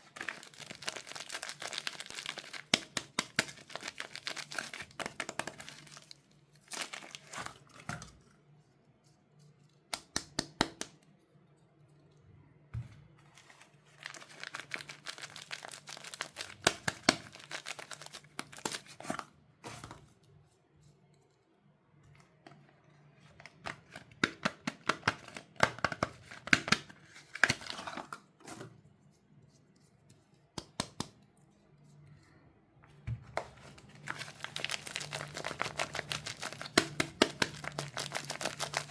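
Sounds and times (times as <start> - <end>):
wrappers tearing and crinkling: 0.0 - 7.8, 13.3 - 19.2, 33.9 - 38.9.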